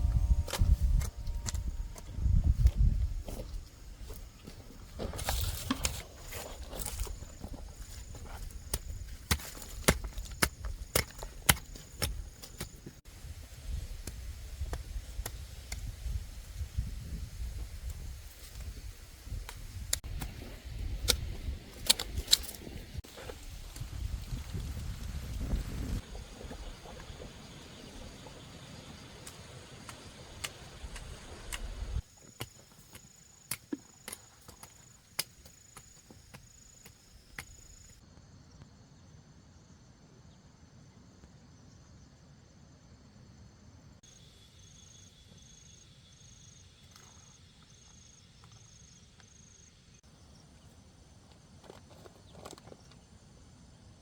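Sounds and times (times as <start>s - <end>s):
low steady rumble: 0.0s - 3.3s
insects trilling: 26.0s - 38.9s, 44.0s - 54.0s.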